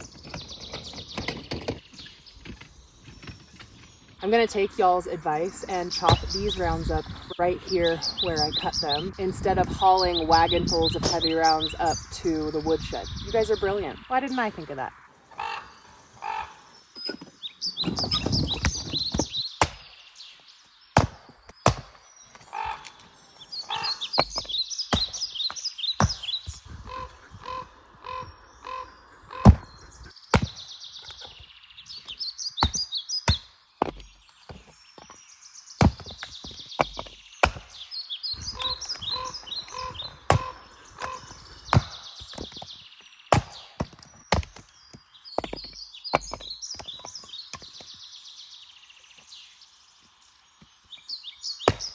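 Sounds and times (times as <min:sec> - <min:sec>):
axe chopping firewood: 0:05.9 - 0:07.0, 0:17.0 - 0:20.0, 0:20.9 - 0:23.1, 0:24.0 - 0:27.1, 0:29.4 - 0:35.2, 0:35.8 - 0:48.0, 0:51.6 - 0:51.9.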